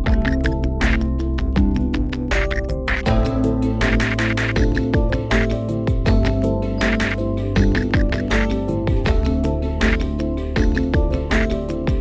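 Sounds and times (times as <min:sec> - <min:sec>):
synth music with steady beat: 0:00.0 - 0:12.0.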